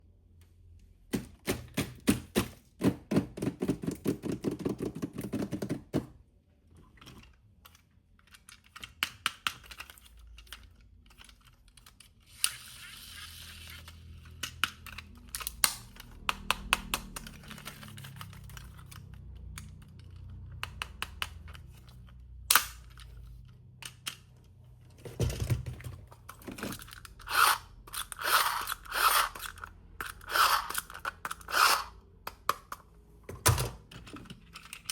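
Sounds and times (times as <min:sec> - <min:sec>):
plastic parts knocking: 0:01.1 - 0:06.2, 0:24.9 - 0:27.0
plastic toy pieces clicking: 0:07.0 - 0:24.4, 0:26.3 - 0:32.9, 0:33.9 - 0:34.9.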